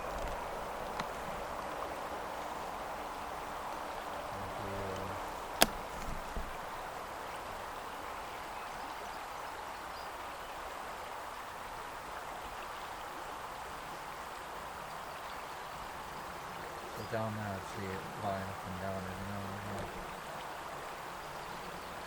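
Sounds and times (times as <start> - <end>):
river water flowing: 0.0 - 22.0
sharp click: 5.6 - 6.2.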